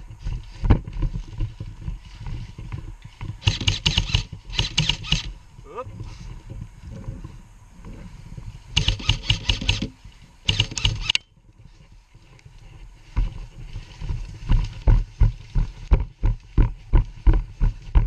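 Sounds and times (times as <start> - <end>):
airsoft rifle full-auto fire: 3.4 - 5.4, 8.8 - 11.3.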